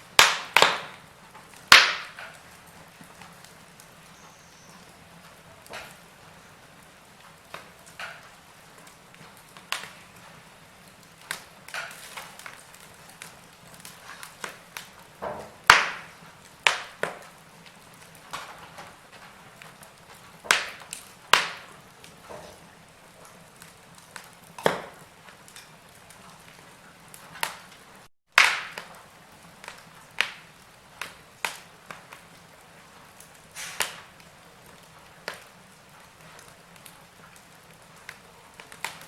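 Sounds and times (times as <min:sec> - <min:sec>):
wood fire crackling: 0:00.0 - 0:39.0
faint hiss: 0:29.1 - 0:37.2.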